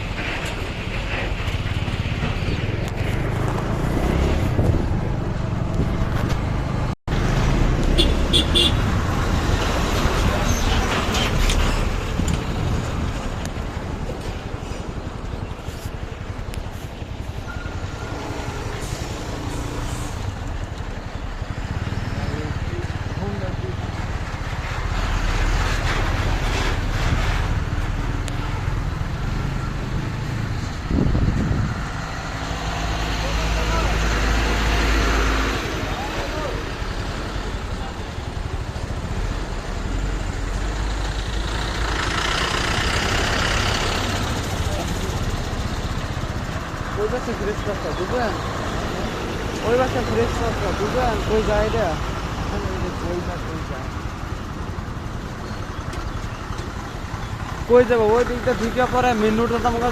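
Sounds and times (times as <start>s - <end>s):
loud rushing noise: 0.0s - 15.5s
road traffic noise: 0.0s - 59.9s
vehicle engine rumbling: 0.0s - 59.9s.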